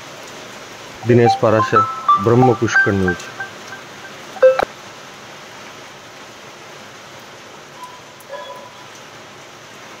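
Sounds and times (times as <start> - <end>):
rain hissing: 0.0 - 10.0.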